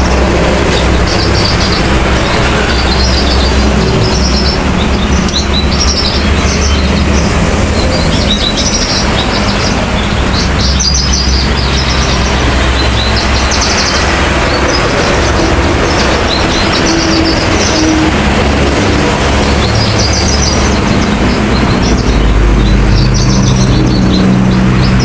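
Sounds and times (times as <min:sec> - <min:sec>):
bird chirps and trills: 0:00.0 - 0:25.0
loud steady low hum: 0:00.0 - 0:25.0.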